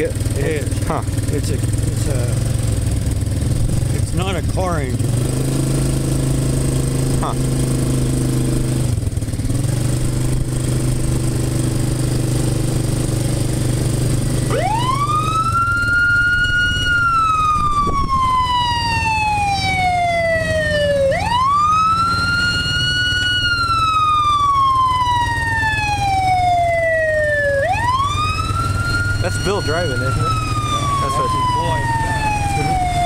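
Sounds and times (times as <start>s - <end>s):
engine running: 0.0s - 33.0s
fire truck siren wailing: 10.0s - 33.0s.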